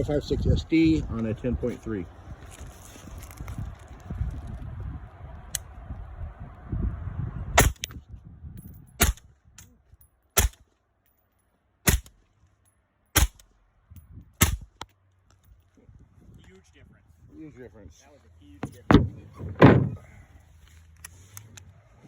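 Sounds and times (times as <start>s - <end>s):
suppressed rifle shots: 7.6s - 7.9s, 10.4s - 10.6s, 11.9s - 12.2s.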